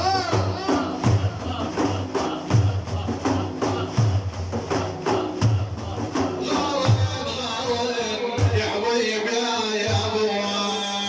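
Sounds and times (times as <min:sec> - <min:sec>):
frame drums beating: 0:00.0 - 0:08.9.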